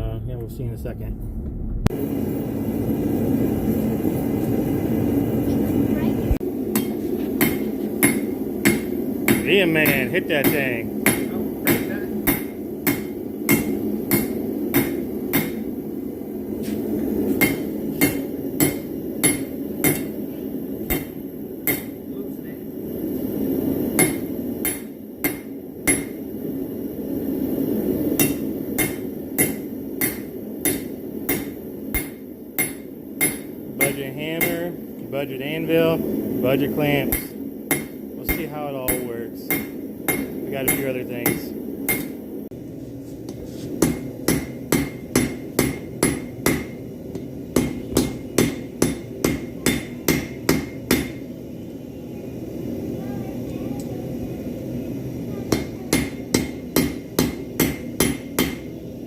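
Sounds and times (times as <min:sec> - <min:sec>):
forge burner rushing: 0:01.3 - 0:59.0
hammer striking metal on anvil: 0:06.7 - 0:15.7, 0:17.4 - 0:22.0, 0:23.9 - 0:26.3, 0:28.1 - 0:34.8, 0:37.0 - 0:42.2, 0:43.8 - 0:51.3, 0:55.5 - 0:58.8.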